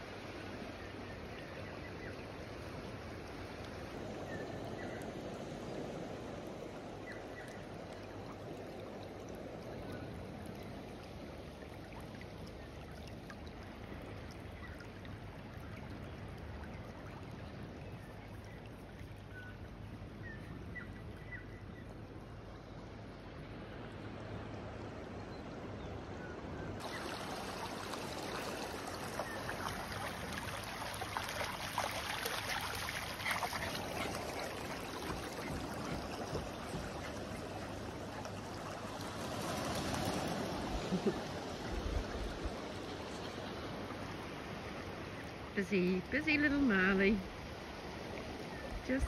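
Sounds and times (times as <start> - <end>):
running water rushing: 0.0 - 24.7, 26.8 - 49.0.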